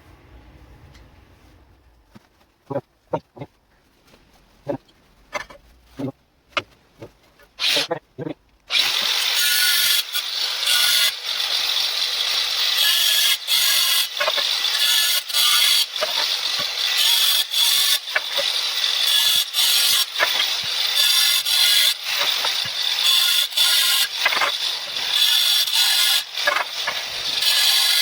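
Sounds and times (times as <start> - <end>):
angle grinder cutting tiles: 7.6 - 8.0, 8.7 - 28.0.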